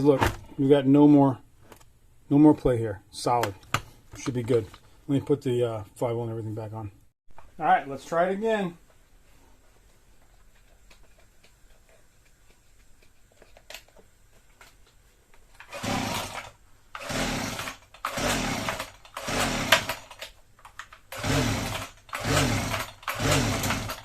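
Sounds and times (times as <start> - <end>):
small engine cranking: 15.6 - 20.3, 21.1 - 24.0
recoil starter pulls: 15.6 - 24.0.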